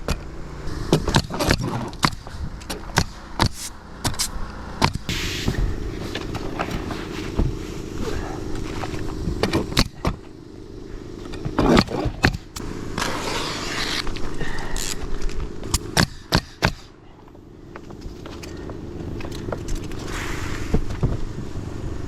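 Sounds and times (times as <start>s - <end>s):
low mechanical hum: 0.0s - 22.0s
rustling hiss: 5.1s - 9.4s, 19.8s - 21.6s.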